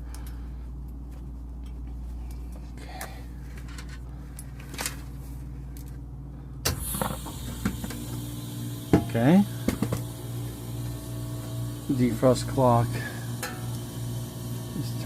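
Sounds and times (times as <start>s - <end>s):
refrigeration equipment humming: 6.0s - 15.0s.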